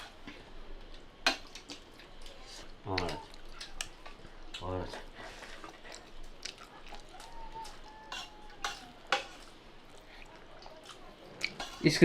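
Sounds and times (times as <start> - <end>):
cutlery clinking on plate: 8.1 - 9.5, 11.4 - 12.0.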